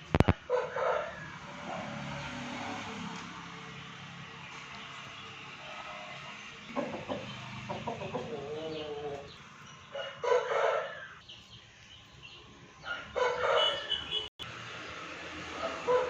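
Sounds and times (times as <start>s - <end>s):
rooster crowing: 0.5s - 1.3s, 9.9s - 11.2s, 12.8s - 14.0s, 15.6s - 16.0s
chickens calling: 4.5s - 14.2s.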